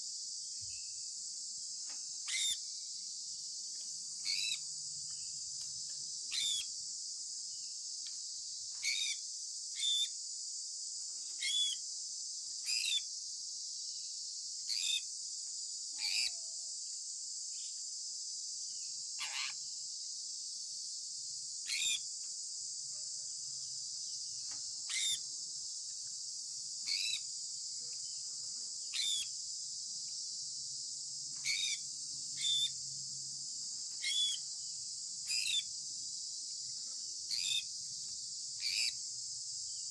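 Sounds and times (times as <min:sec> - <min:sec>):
parrot chirping: 0:34.0 - 0:34.4.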